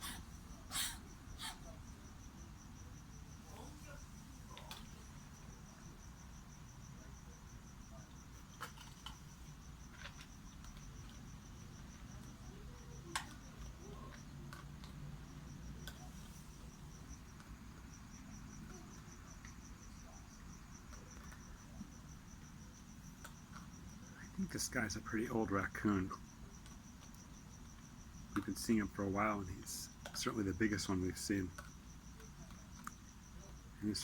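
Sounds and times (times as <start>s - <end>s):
cricket chirping: 0.0s - 34.0s.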